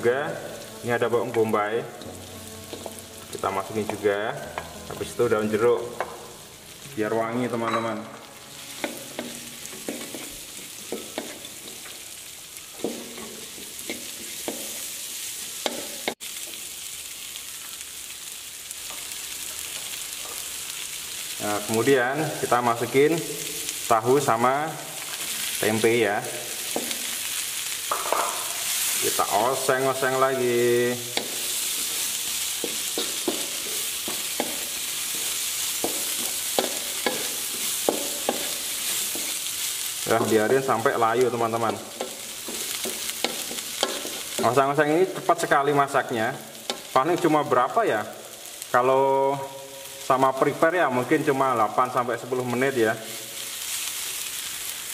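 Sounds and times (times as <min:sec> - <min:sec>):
food sizzling in a wok: 0:00.0 - 0:54.9
spatula scraping and tapping wok: 0:01.3 - 0:05.0, 0:07.7 - 0:16.7, 0:26.7 - 0:29.0, 0:31.0 - 0:44.6, 0:46.6 - 0:47.0
utensil scraping pan: 0:41.7 - 0:44.4.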